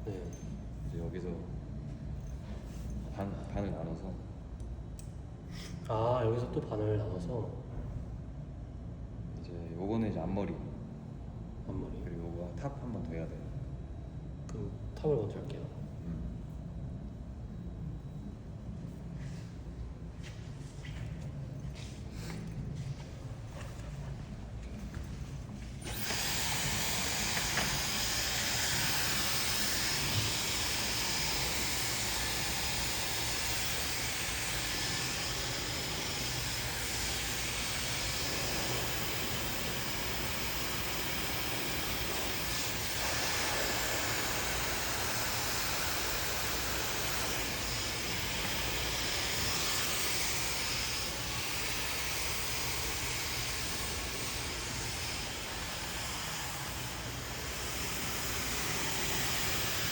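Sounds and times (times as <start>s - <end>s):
hair dryer blowing: 21.8s - 59.9s.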